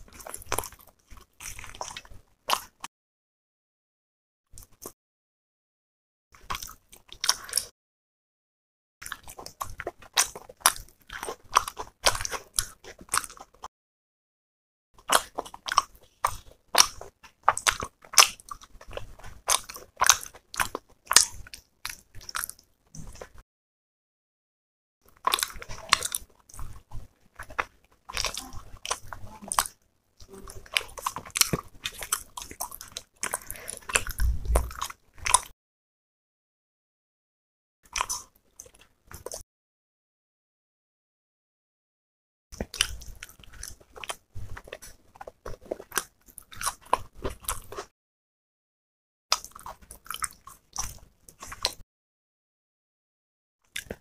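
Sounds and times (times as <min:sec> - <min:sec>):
chewing and biting mouth sounds: 0:00.0 - 0:02.9, 0:06.4 - 0:07.7, 0:09.0 - 0:13.7, 0:15.0 - 0:23.4, 0:25.1 - 0:35.5, 0:37.9 - 0:39.4, 0:42.6 - 0:47.9, 0:49.3 - 0:51.8, 0:53.7 - 0:54.0.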